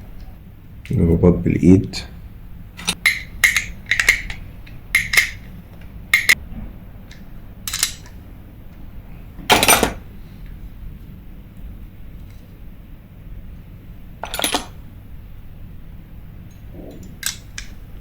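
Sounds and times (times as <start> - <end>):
metal parts clicking and clinking: 2.8 - 6.4, 7.1 - 8.2, 9.5 - 10.0, 14.2 - 14.8, 17.0 - 17.8.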